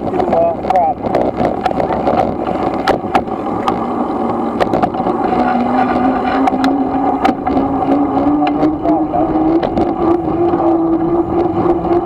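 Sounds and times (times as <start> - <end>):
wind rush: 0.0 - 12.0
electric motor whining: 1.2 - 12.0
bike clicks and knocks: 6.2 - 8.8.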